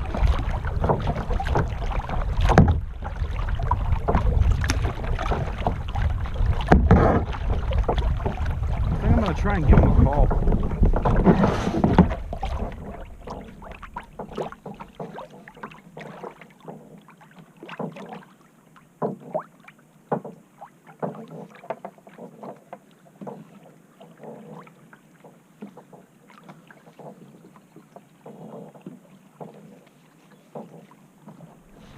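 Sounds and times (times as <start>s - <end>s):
water splashing and dripping: 0.0s - 31.9s
wind gusts on microphone: 2.1s - 13.2s.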